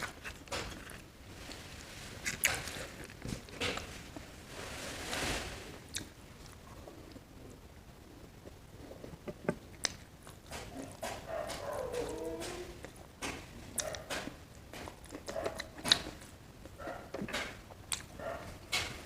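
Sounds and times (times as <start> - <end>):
chewing: 8.4 - 18.9.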